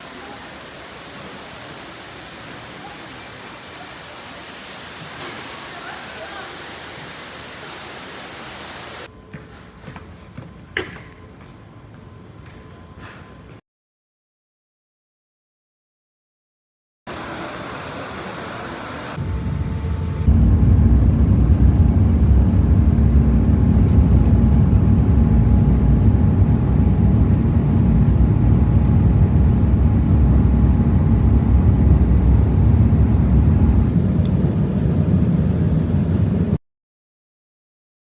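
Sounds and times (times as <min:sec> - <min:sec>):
jet engines rumbling: 0:00.0 - 0:09.1, 0:17.1 - 0:36.6.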